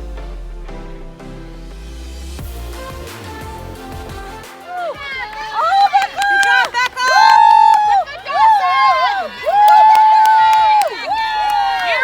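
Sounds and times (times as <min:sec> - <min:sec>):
electronic music with bass line: 0:00.0 - 0:08.2.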